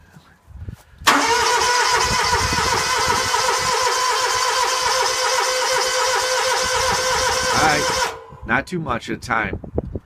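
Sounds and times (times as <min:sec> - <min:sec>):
starter cranking mower engine: 0:01.1 - 0:08.3.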